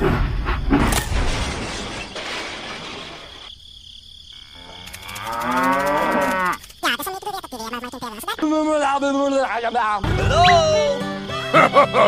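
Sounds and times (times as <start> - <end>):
shattering crash: 0.7 - 3.5
cow mooing: 4.5 - 6.6.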